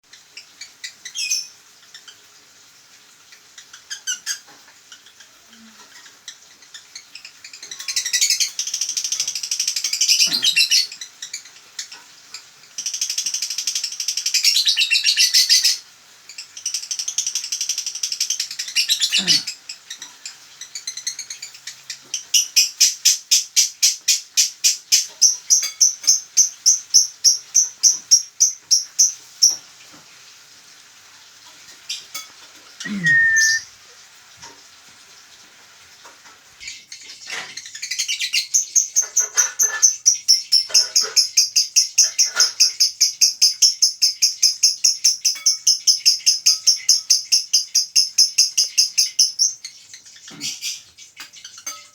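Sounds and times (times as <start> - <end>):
songbird chattering: 32.8 - 33.6
songbird sharp repeated notes: 32.9 - 33.6.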